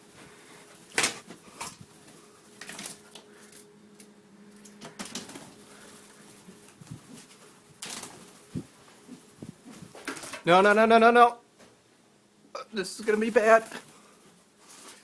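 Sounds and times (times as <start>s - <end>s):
faint steady hum: 0.0s - 15.0s
bird flapping wings: 0.8s - 3.6s, 4.6s - 10.5s, 13.1s - 15.0s.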